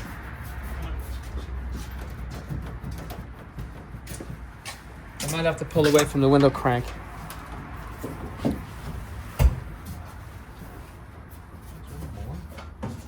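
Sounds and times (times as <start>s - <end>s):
knocks on car door panel: 9.4s - 9.7s.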